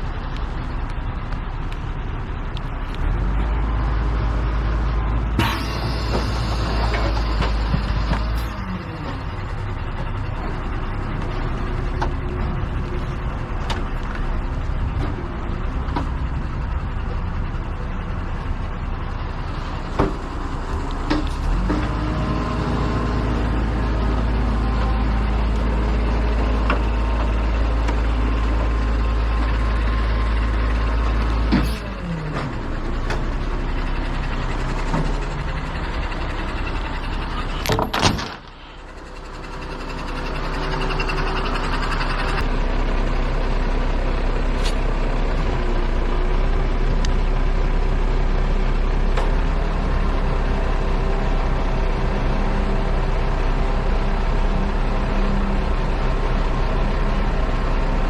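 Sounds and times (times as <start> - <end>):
heavy truck engine running: 0.0 - 58.0
sharp clunk: 5.4 - 8.5, 37.6 - 38.5.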